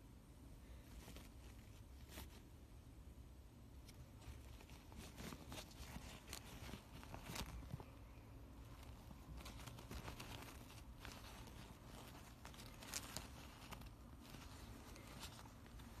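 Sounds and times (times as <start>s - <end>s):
fabric rustling and tearing: 0.7s - 2.5s, 3.8s - 16.0s.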